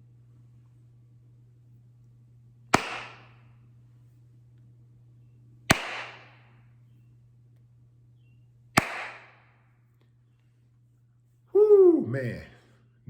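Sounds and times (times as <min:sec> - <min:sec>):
gunshots with echo: 0:02.8 - 0:03.4, 0:05.7 - 0:06.4, 0:08.8 - 0:09.4.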